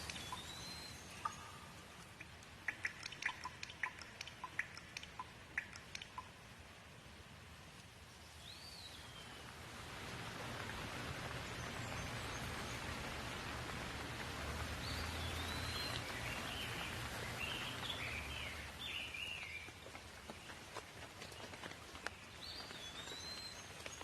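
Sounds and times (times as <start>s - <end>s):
birds chirping: 0.0s - 6.4s, 14.6s - 24.0s
raindrops ticking: 0.0s - 6.8s, 9.4s - 24.0s
rain falling: 0.0s - 24.0s.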